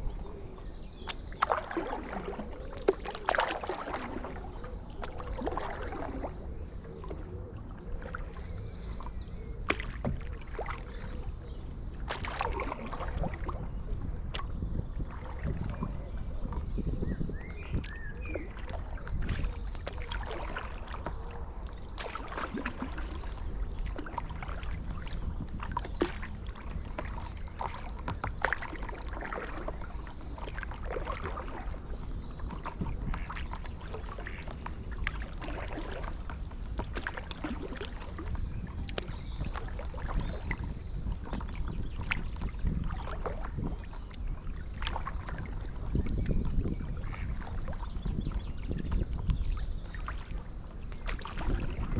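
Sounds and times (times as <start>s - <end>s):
paddle splashing in water: 0.0s - 51.9s
wind rumble on microphone: 0.0s - 51.9s
water drips: 0.4s - 7.3s, 17.8s - 24.8s, 32.8s - 40.7s.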